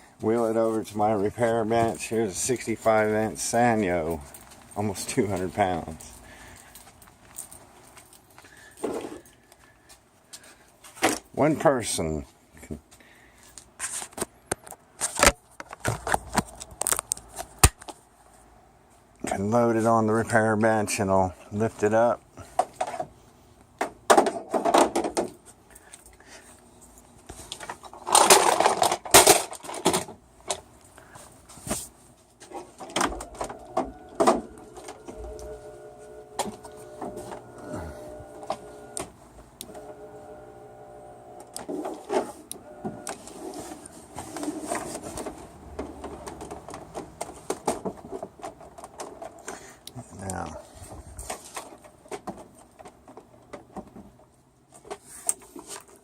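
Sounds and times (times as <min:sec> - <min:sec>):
electric motor humming: 0:32.9 - 0:44.2.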